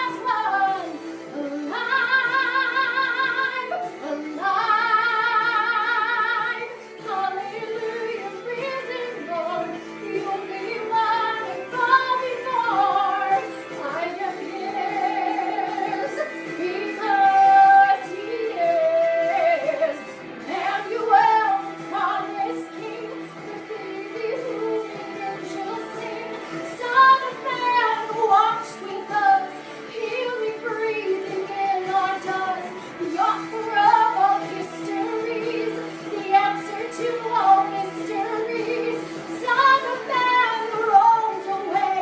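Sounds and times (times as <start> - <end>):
woman singing: 0.0 - 42.0.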